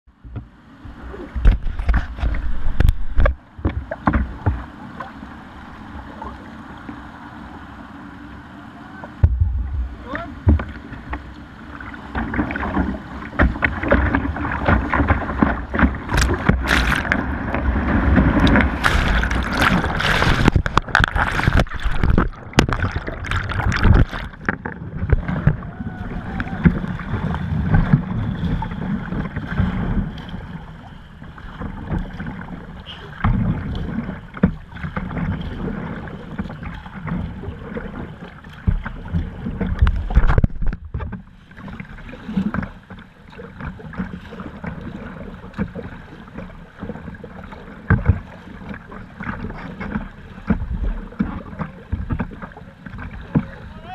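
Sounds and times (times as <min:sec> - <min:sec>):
heavy water splashes: 0:08.5 - 0:53.9
wind on microphone: 0:09.2 - 0:11.1, 0:12.2 - 0:30.6.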